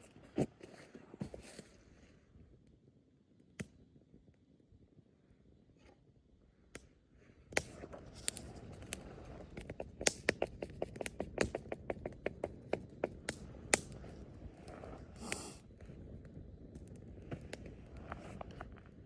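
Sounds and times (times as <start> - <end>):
wood fire crackling: 7.6 - 19.0.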